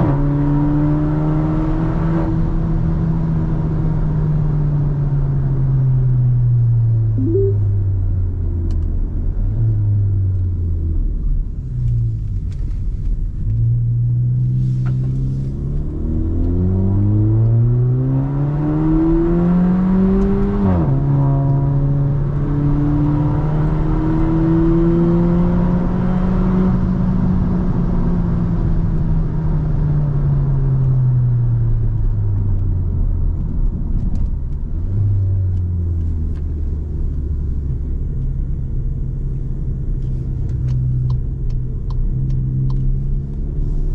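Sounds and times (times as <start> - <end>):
road rumble: 2.4 - 17.8, 26.8 - 43.9
car engine accelerating: 13.4 - 43.9.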